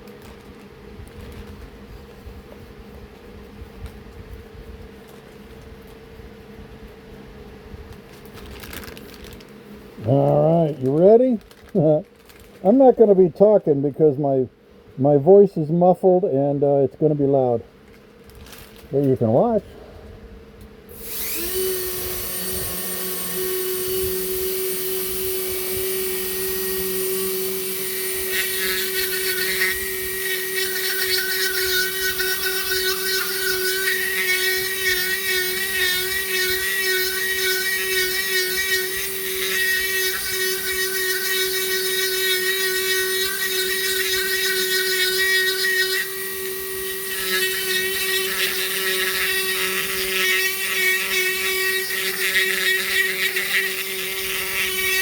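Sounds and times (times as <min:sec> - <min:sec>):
rotary tool whine: 0:20.6 - 0:55.0.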